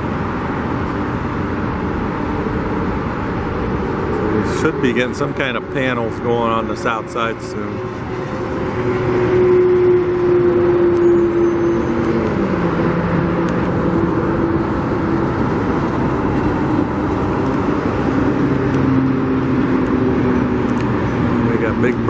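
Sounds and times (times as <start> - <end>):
traffic and engine noise: 0.0 - 22.0
motor humming: 13.4 - 17.6.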